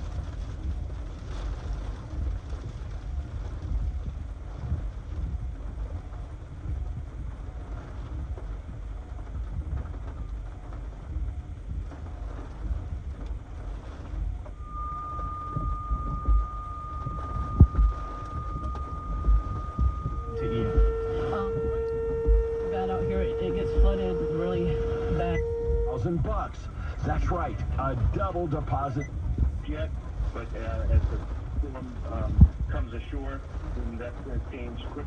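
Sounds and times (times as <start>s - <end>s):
strong wind buffeting microphone: 0.0s - 35.0s
steady high tone: 14.6s - 27.9s.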